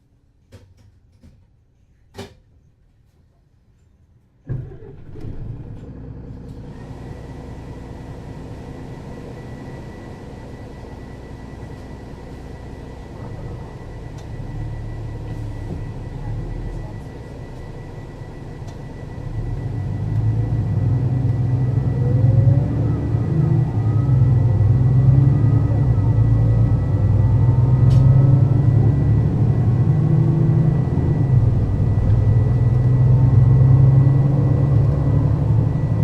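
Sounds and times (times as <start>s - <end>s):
bus diesel engine starting and running: 4.4s - 36.0s.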